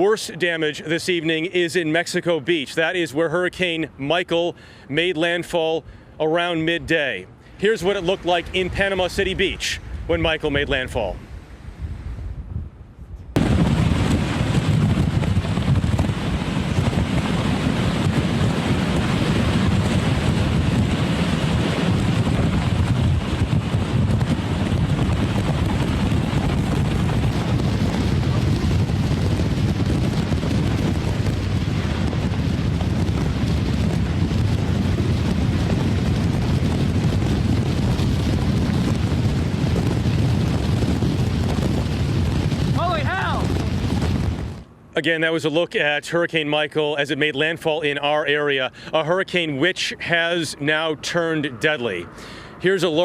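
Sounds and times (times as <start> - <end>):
storm wind buffeting microphone: 5.8 - 44.7.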